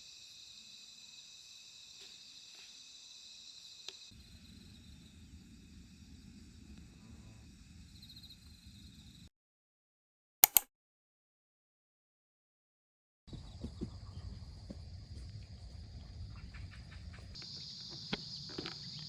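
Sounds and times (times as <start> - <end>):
crickets chirring: 0.0 - 9.3, 13.3 - 19.0
sharp clicks: 10.4 - 10.6.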